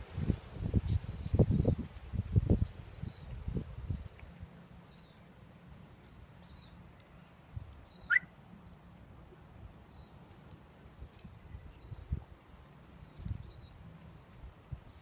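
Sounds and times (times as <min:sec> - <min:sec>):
bird chirps: 0:07.9 - 0:08.3.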